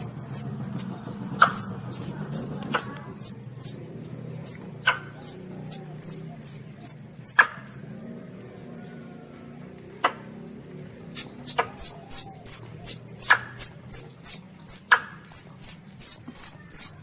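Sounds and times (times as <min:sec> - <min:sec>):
sharp clicks: 0:00.0 - 0:07.8, 0:11.2 - 0:17.0
low steady hum: 0:00.0 - 0:08.5.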